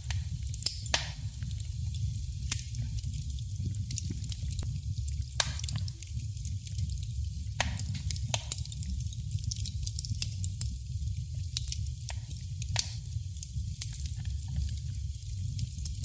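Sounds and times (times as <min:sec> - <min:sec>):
fire crackling in a fireplace: 0:00.0 - 0:16.0.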